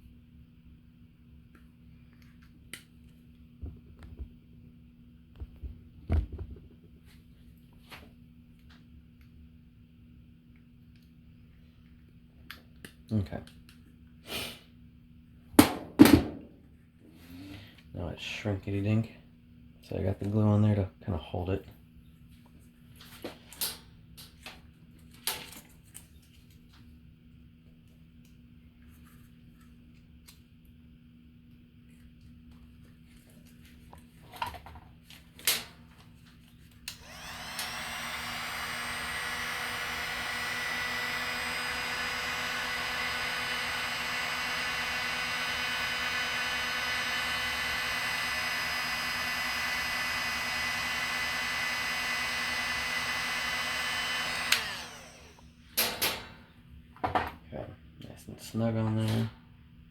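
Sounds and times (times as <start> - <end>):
heat gun fan whining: 15.6 - 16.6, 34.6 - 57.3.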